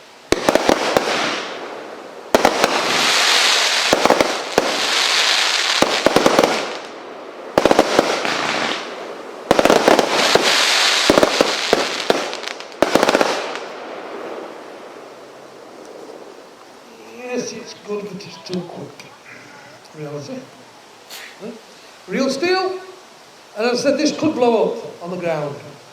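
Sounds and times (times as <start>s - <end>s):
firework bangs with crackling hiss: 0.0s - 16.4s.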